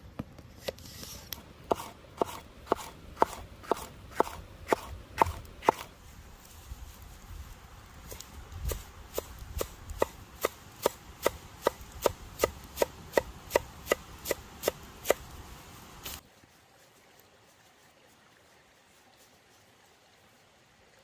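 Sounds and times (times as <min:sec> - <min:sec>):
knife chopping on cutting board: 0:01.7 - 0:05.9.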